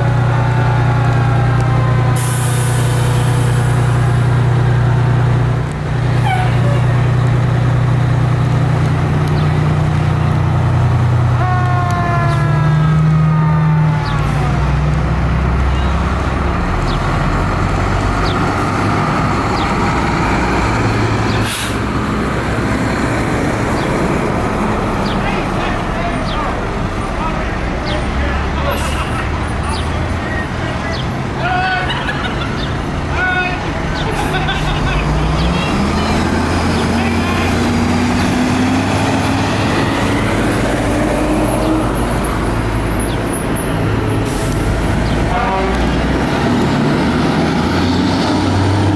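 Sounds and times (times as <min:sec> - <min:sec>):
fire truck diesel engine: 0:00.0 - 0:48.9
air brake hiss: 0:02.2 - 0:03.9, 0:21.4 - 0:21.8.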